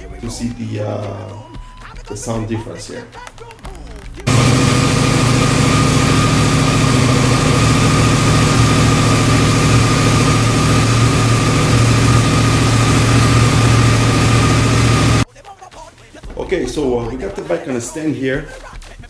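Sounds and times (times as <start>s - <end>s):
motorcycle engine idling: 4.3s - 15.2s.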